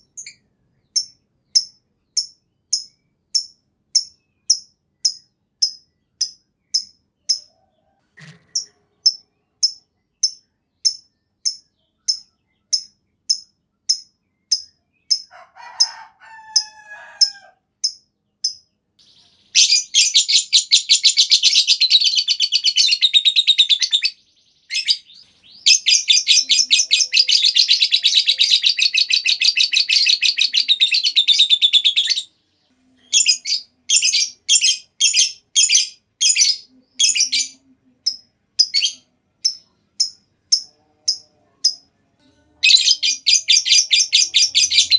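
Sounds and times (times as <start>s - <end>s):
lovebird chirping and trilling: 0.0s - 7.6s, 8.4s - 32.3s, 33.0s - 41.9s, 42.6s - 44.9s.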